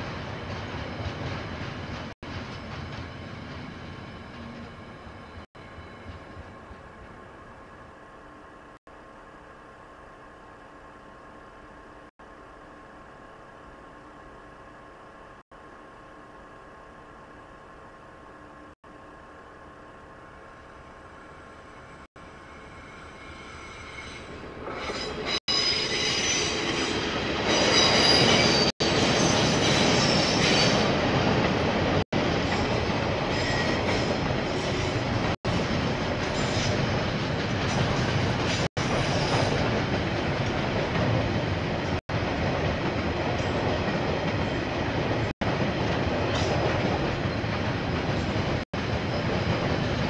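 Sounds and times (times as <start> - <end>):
train wheels rumbling on rails: 0.0 - 7.7, 23.1 - 50.0
high wheel squeal: 22.6 - 30.9.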